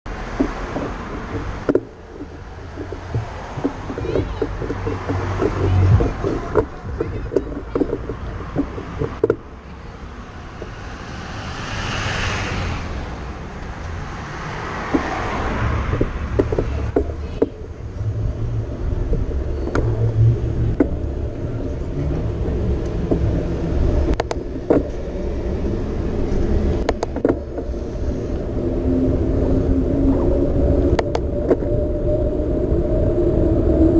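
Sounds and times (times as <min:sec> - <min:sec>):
bike rolling rumble: 0:00.1 - 0:33.9
bike clicks and rattles: 0:00.3 - 0:09.5.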